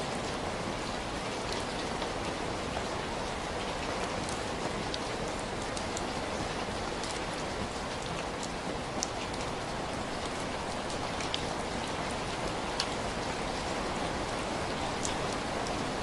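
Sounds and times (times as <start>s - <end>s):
steady rain hiss: 0.0s - 16.0s
raindrop ticks: 3.6s - 16.0s.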